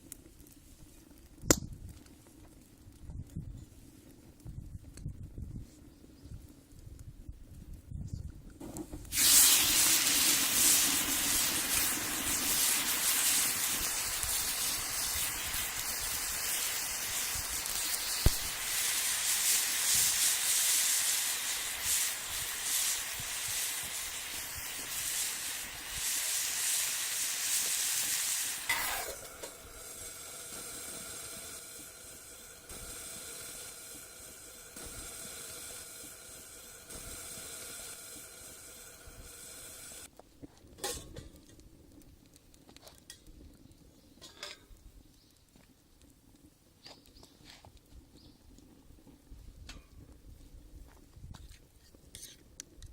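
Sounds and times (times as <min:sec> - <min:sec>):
food sizzling in a skillet: 0:09.1 - 0:40.1.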